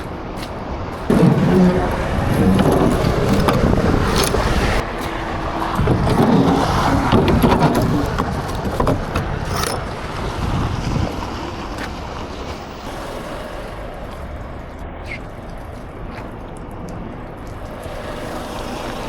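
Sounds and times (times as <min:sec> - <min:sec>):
heavy truck noise: 0:00.0 - 0:19.0
clicks and knocks: 0:00.4 - 0:04.8, 0:05.5 - 0:10.4.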